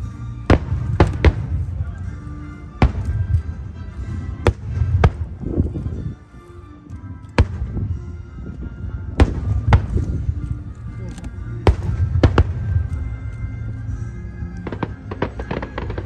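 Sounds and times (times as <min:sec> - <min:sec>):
background music: 0:00.0 - 0:16.0
fireworks bursting: 0:00.4 - 0:01.9, 0:02.5 - 0:05.7, 0:09.1 - 0:10.3, 0:11.6 - 0:12.9, 0:14.6 - 0:16.0.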